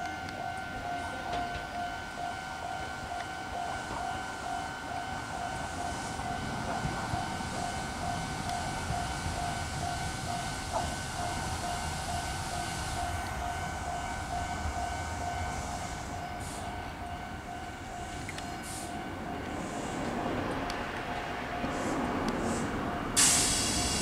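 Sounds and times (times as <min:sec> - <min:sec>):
pulsing high tone: 0:00.0 - 0:20.0
train wheels and motors rumbling: 0:00.0 - 0:24.0.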